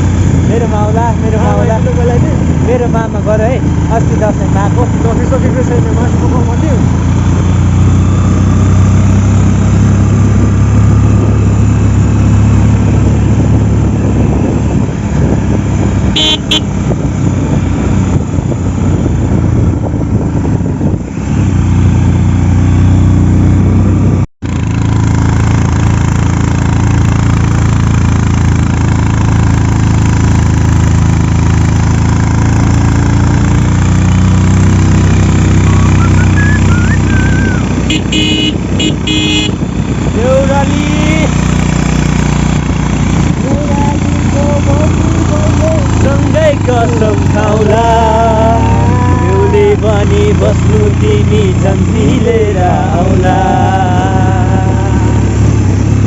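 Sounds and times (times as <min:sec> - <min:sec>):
motorcycle engine running: 0:00.0 - 0:56.0
short horn toot: 0:16.1 - 0:16.7, 0:35.7 - 0:39.6.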